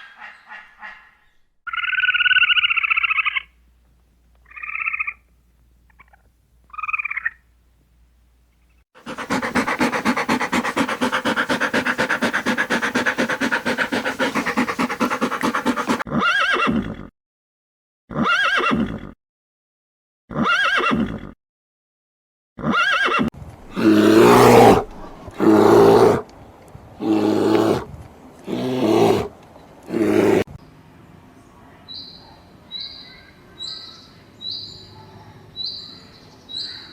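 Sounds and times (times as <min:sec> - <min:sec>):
farm animal calls: 0:09.0 - 0:16.4.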